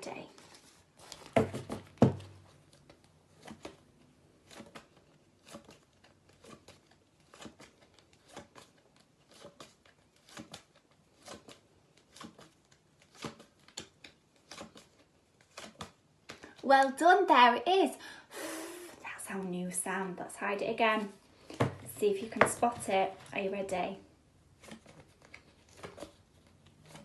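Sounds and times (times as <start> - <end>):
paper cards flicking: 4.4 - 16.5, 24.6 - 27.0.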